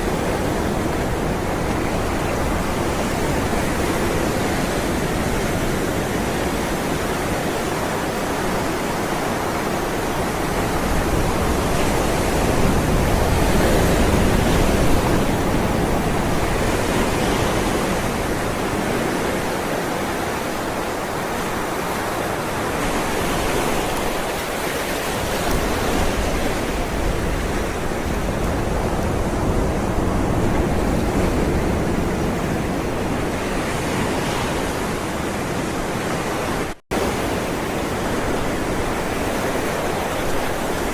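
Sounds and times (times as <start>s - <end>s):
waves breaking: 0.0s - 40.9s.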